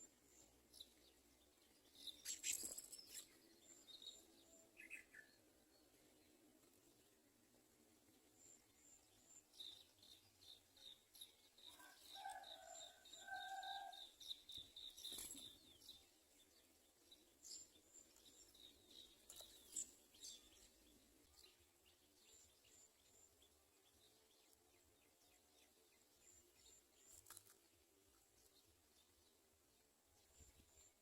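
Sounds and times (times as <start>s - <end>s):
sparrow chirping: 8.7s - 24.0s.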